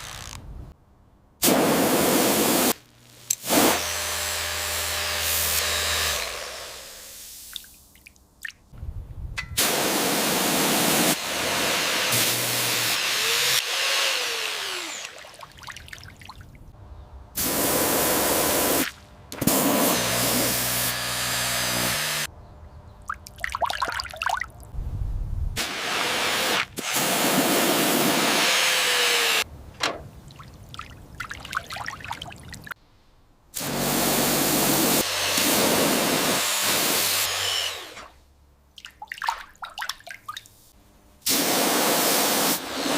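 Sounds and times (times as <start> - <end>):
loud hissing spray jet: 1.4 - 2.8, 3.4 - 3.8, 6.7 - 7.5, 9.6 - 13.6, 17.4 - 18.9, 25.6 - 28.6, 33.6 - 37.3, 41.2 - 42.9
water trickling and dripping: 7.5 - 8.7, 15.2 - 16.7, 23.0 - 24.7, 30.2 - 32.8, 38.8 - 40.6.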